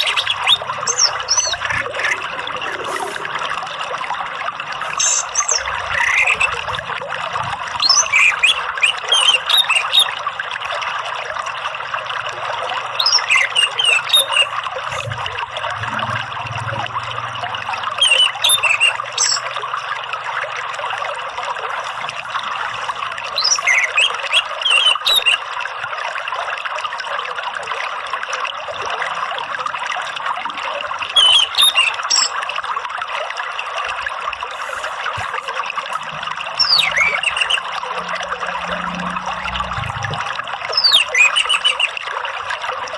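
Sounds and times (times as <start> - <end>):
water trickling: 0.0 - 42.9
thrush singing whistles: 4.9 - 6.6, 7.8 - 10.2, 13.0 - 14.5, 18.0 - 19.5, 23.4 - 25.4, 31.2 - 32.4, 36.6 - 37.8, 40.7 - 42.0.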